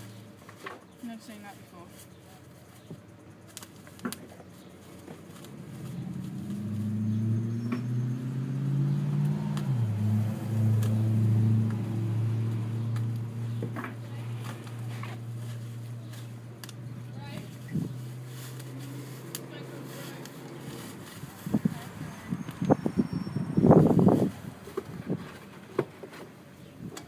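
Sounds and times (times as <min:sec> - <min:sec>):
engine running: 0:01.9 - 0:27.0.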